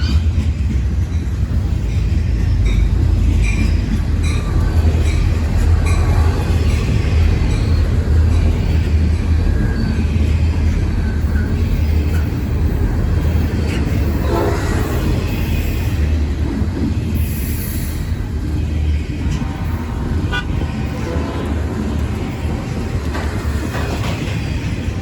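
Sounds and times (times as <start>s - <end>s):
diesel locomotives rumbling: 0.0s - 25.0s
train horn blast: 14.1s - 15.2s, 19.3s - 22.2s.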